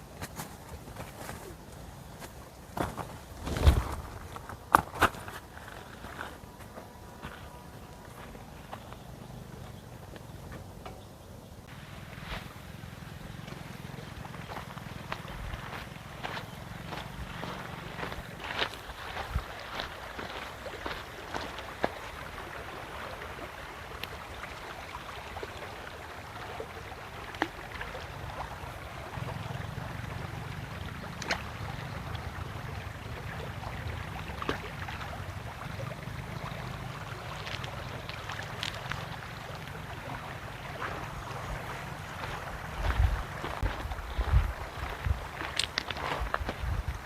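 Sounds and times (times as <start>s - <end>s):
running water rushing: 11.6s - 47.0s.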